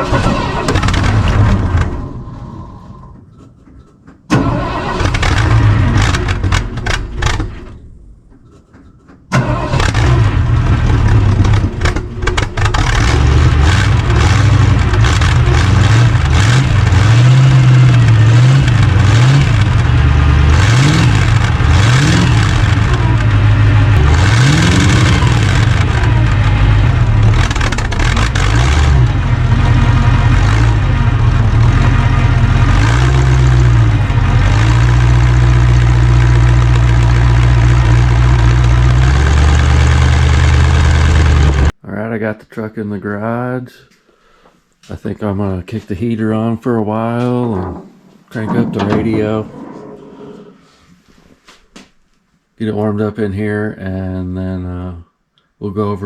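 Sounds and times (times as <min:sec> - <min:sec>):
pickup engine starting and revving: 0:00.0 - 0:03.2, 0:04.3 - 0:08.0, 0:09.3 - 0:41.7.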